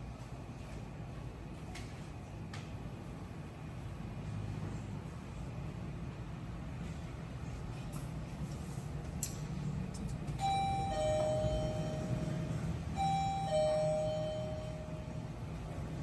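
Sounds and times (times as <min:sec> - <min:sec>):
electronic two-tone chime: 0:10.4 - 0:15.3.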